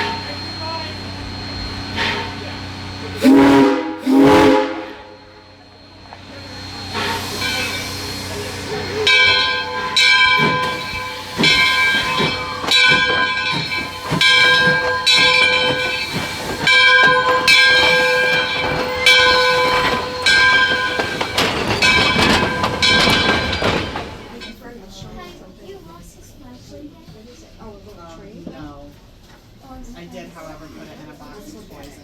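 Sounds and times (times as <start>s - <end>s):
steam hissing: 0.0s - 24.4s
locomotive bell ringing: 0.0s - 24.6s.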